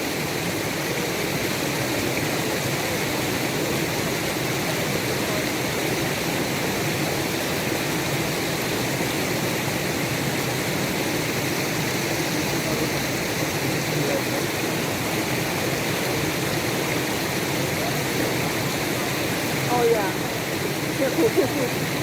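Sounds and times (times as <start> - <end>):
stream running over rocks: 0.0 - 22.0.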